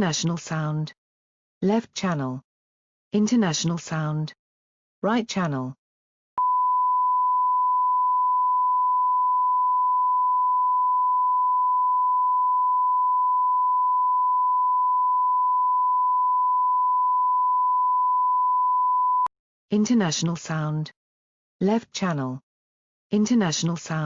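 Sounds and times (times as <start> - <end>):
sine wave tone: 6.4 - 19.3.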